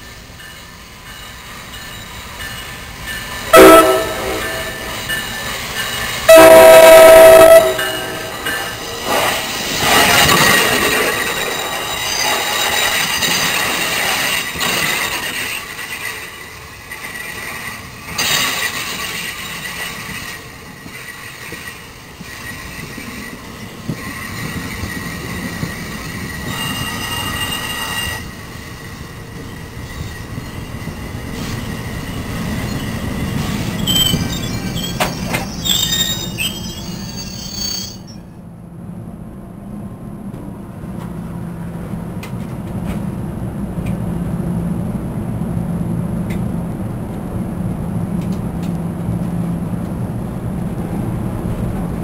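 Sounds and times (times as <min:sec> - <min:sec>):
train wheels squealing on rails: 0:00.0 - 0:38.4
train rumble: 0:00.0 - 0:52.0.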